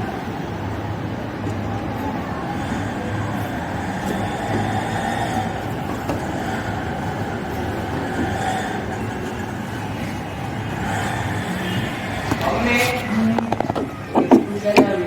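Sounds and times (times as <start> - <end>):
washing machine motor rumble: 0.0 - 15.0.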